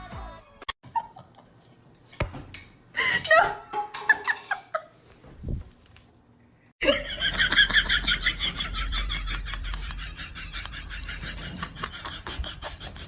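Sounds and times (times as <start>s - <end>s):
person laughing: 0.8s - 1.6s.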